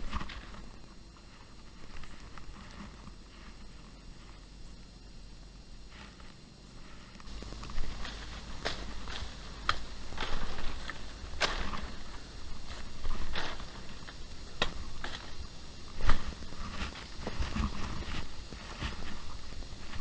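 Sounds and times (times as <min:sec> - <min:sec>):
footsteps crunching on trail: 0:05.8 - 0:20.0.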